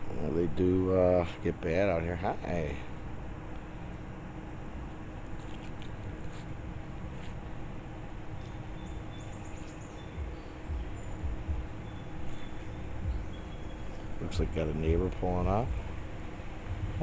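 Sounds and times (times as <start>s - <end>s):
steady low hiss: 0.0s - 17.0s
high chirps: 8.4s - 15.0s
low thumps: 10.1s - 17.0s.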